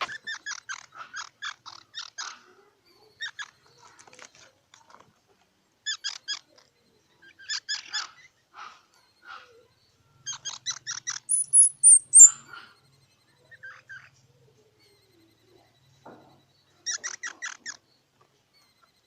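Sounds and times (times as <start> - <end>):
squirrel chirping: 0.0 - 2.4, 5.8 - 19.0.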